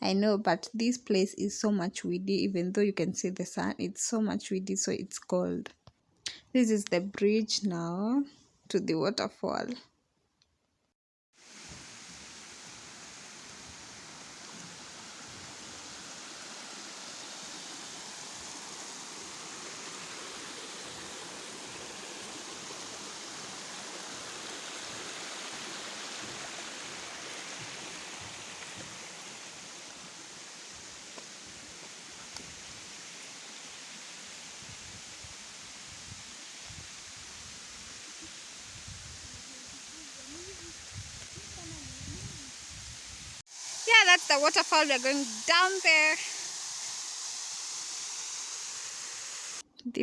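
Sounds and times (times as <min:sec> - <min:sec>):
flowing water rushing: 0:11.4 - 0:49.6.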